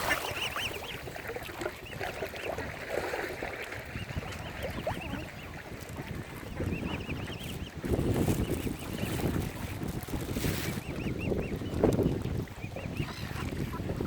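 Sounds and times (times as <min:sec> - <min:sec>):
cygnets peeping: 0:00.0 - 0:01.0, 0:03.9 - 0:14.0.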